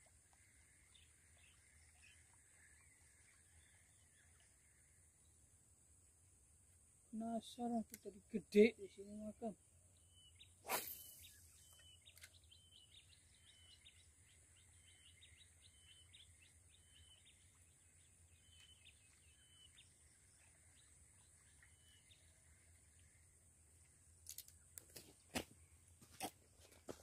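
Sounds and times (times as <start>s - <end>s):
small birds chirping: 0.0s - 5.4s, 7.2s - 23.3s
high thin whine: 10.6s - 11.5s.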